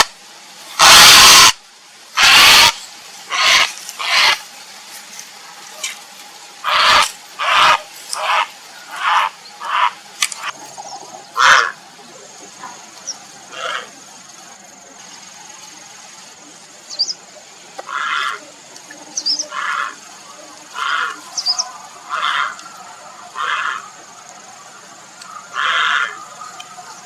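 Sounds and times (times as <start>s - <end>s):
heron rasping calls: 0.8s - 1.6s, 2.2s - 4.4s, 6.6s - 10.5s, 11.4s - 11.8s, 25.6s - 26.2s.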